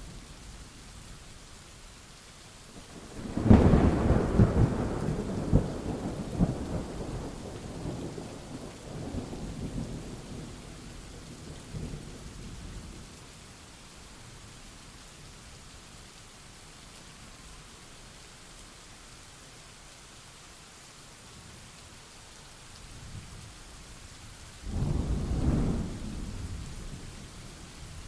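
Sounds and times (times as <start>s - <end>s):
rain hiss: 0.0s - 28.0s
thunder clap and rumble: 3.2s - 8.2s, 24.7s - 28.0s.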